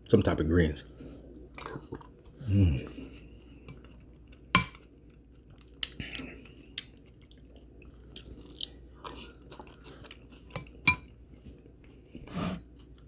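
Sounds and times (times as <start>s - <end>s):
chewing and biting food: 3.8s - 10.8s.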